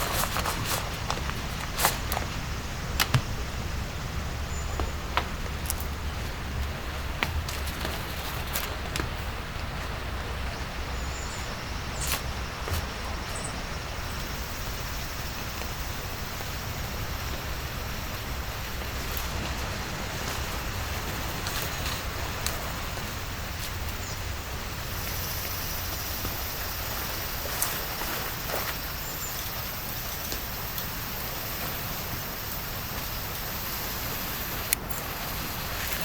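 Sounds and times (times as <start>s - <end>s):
steady rain falling: 0.0s - 36.0s
sharp taps of raindrops: 0.2s - 3.7s, 4.6s - 10.6s.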